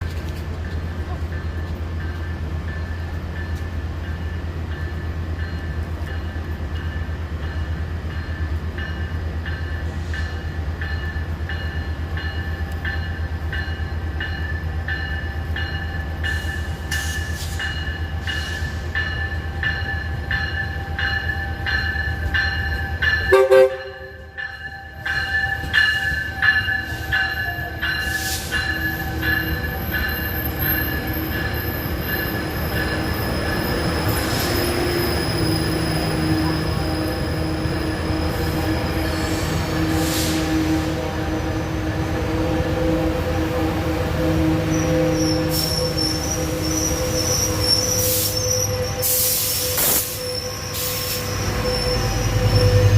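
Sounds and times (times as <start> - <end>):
train engine rumbling: 0.0 - 52.9
train wheel squeal: 1.4 - 40.9, 44.6 - 52.9
train horn taps: 23.2 - 24.3.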